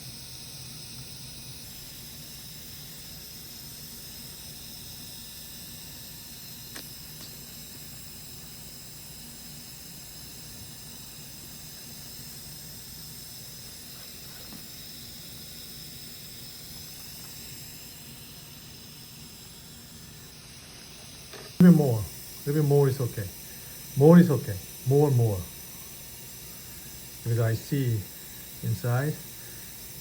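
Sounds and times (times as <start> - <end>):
steady hiss: 6.2 - 30.0.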